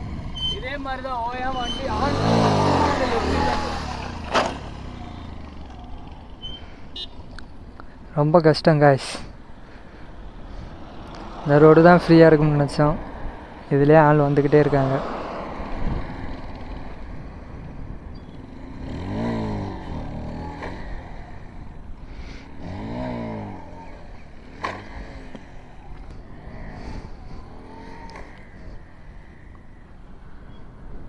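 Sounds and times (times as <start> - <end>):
motorcycle engine revving: 0.0 - 7.5, 14.2 - 29.5.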